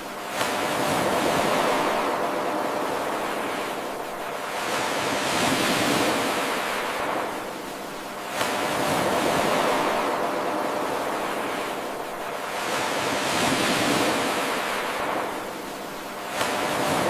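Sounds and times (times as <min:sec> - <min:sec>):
ocean surf washing in: 0:00.0 - 0:17.0.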